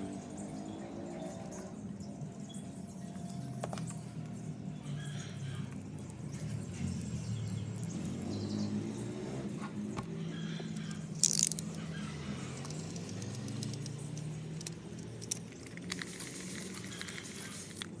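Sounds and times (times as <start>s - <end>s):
small metal objects jingling: 10.7s - 18.0s.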